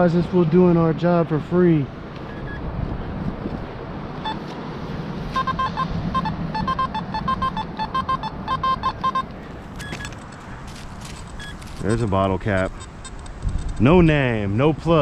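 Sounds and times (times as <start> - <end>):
traffic hum: 0.0 - 15.0
metal detector beeping: 2.2 - 2.6, 4.2 - 4.6, 5.3 - 13.3.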